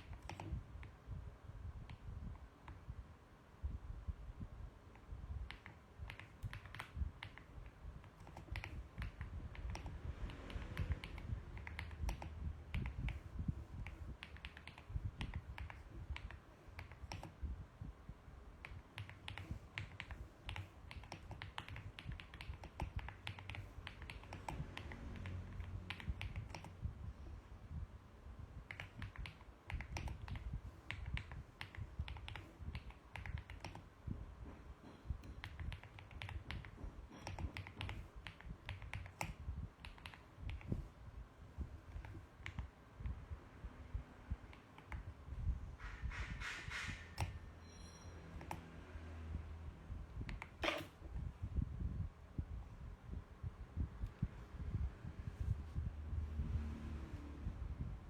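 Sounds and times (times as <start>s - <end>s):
mechanical keyboard typing: 0.0s - 1.0s, 5.4s - 17.4s, 18.6s - 26.9s, 28.6s - 33.9s, 35.2s - 40.9s, 41.6s - 43.2s, 44.3s - 45.2s, 50.2s - 51.0s.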